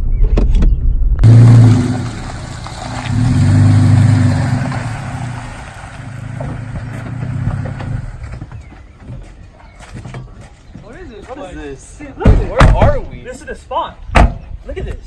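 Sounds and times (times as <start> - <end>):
vehicle engine running: 1.2 - 8.4.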